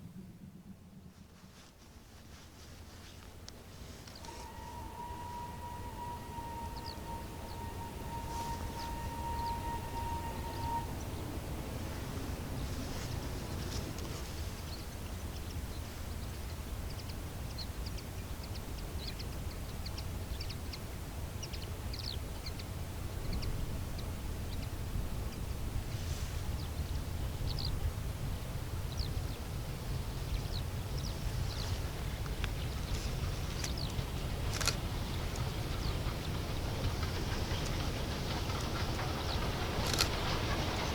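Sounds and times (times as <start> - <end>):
steady low rumble: 0.0 - 40.9
bird chirps: 4.1 - 11.3
steam locomotive whistle: 4.1 - 13.2, 32.8 - 40.9.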